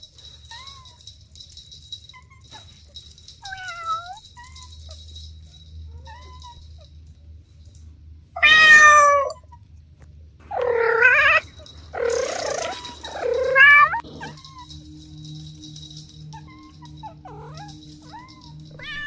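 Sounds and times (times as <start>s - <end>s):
kittens meowing: 8.4s - 9.6s, 10.5s - 14.7s, 16.4s - 19.0s.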